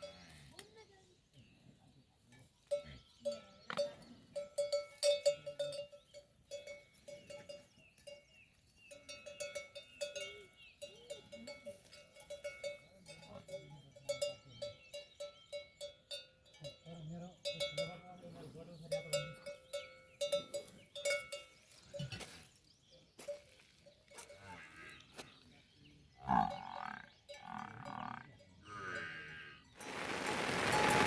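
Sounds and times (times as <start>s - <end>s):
livestock bell clanking: 2.4s - 22.3s, 26.3s - 31.0s.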